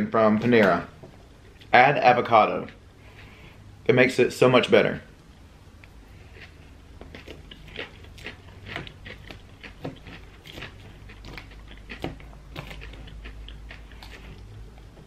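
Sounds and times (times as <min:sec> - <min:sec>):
chewing salad: 0:05.8 - 0:15.0.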